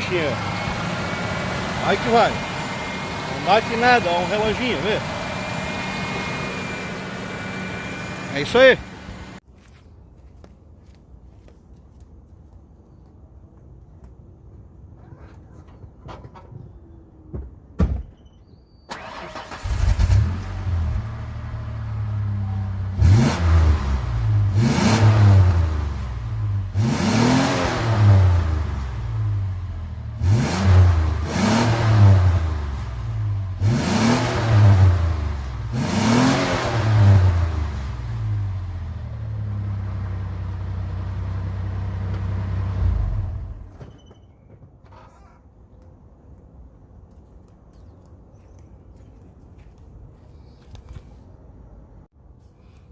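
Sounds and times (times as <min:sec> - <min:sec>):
car engine revving and idling: 0:00.0 - 0:09.4, 0:19.0 - 0:43.6.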